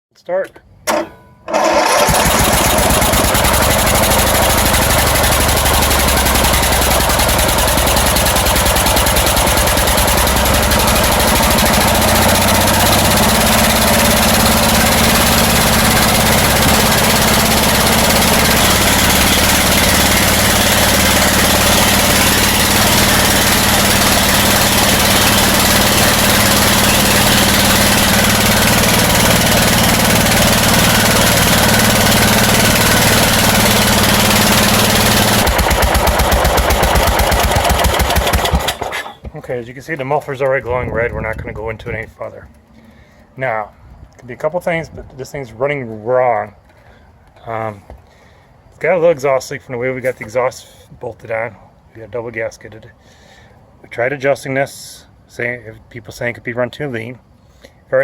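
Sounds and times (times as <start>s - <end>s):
tractor engine running: 0.9s - 41.9s.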